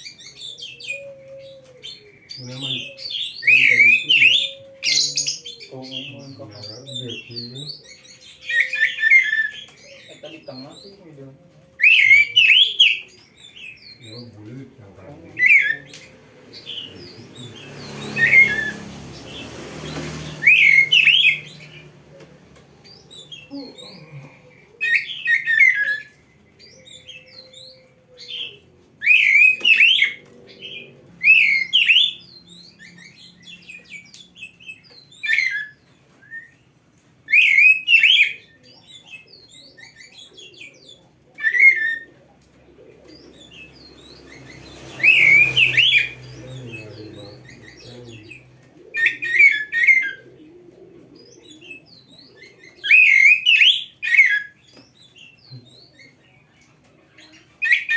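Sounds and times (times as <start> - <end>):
magpie-robin singing whistled phrases: 1.8 - 10.9, 11.8 - 14.0, 20.4 - 21.8, 24.8 - 30.2, 31.2 - 36.6, 37.3 - 42.1, 51.4 - 56.2, 57.2 - 57.9.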